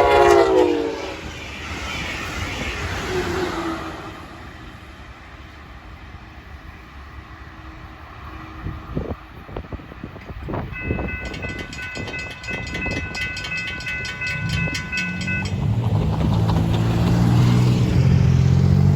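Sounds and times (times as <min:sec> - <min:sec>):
diesel locomotive engine: 0:00.0 - 0:18.9
train wheels clicking on rails: 0:09.2 - 0:18.9
warning bell ringing rapidly: 0:10.8 - 0:15.9.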